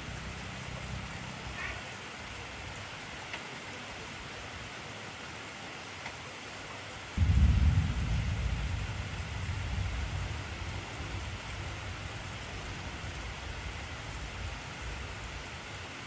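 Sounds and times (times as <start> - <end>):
heavy rain: 0.0 - 16.0
thunder rumble: 7.2 - 15.8.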